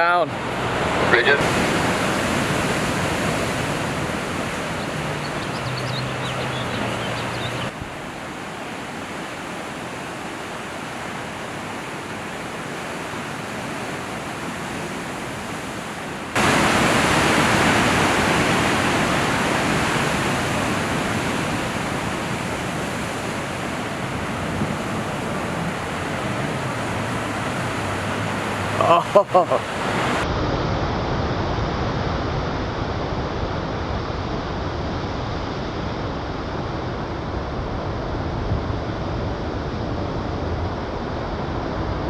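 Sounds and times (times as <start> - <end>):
ocean water rushing: 0.0 - 30.2
wind: 0.0 - 42.0.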